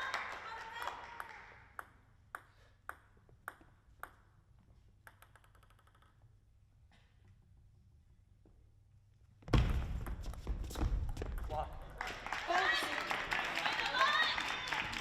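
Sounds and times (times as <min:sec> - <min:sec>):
table tennis ball bouncing: 0:01.2 - 0:06.4.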